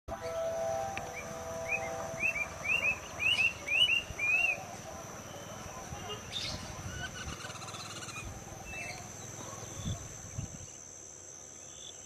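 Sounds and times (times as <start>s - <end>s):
high-pitched insect trill: 5.3s - 12.0s.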